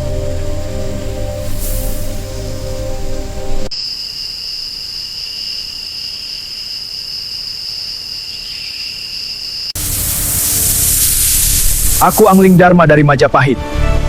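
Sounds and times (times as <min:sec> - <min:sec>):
music: 0:00.0 - 0:03.7, 0:12.6 - 0:14.0
insects trilling: 0:00.0 - 0:12.6.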